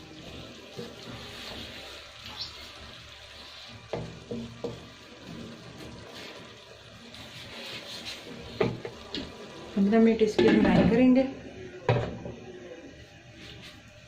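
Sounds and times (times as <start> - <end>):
vegetables sizzling in a pot: 0.0 - 14.0.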